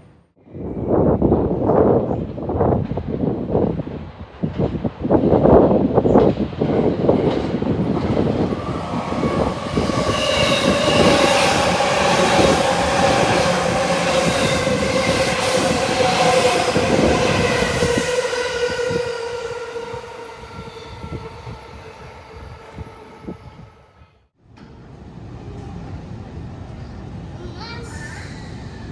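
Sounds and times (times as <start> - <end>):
train wheels rumbling on rails: 0.6 - 28.9
train motor whine: 7.8 - 23.9.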